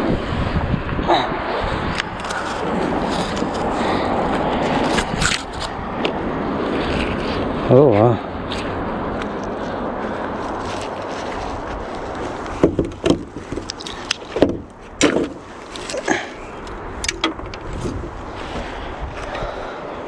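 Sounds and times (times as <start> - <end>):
steady rushing noise: 0.0 - 20.0
sharp knocks and clunks: 12.6 - 16.3, 17.0 - 17.6.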